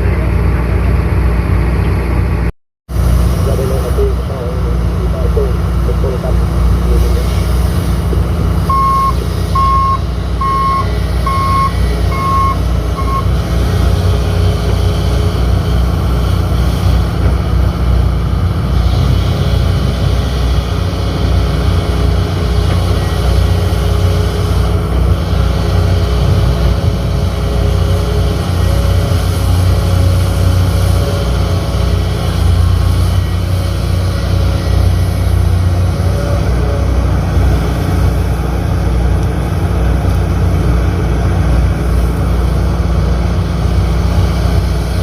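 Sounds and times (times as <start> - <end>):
diesel engine running: 0.0 - 45.0
backup alarm beeping: 8.6 - 13.3.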